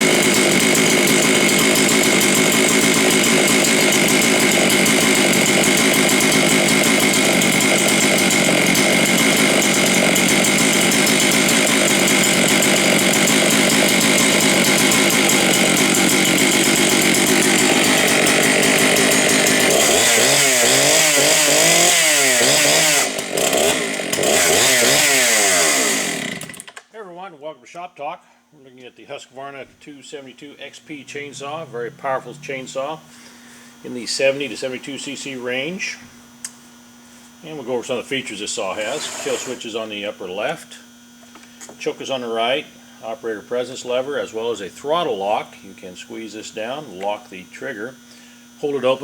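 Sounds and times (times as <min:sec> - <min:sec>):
chainsaw revving: 0:00.0 - 0:26.8, 0:30.4 - 0:36.0, 0:37.5 - 0:41.1.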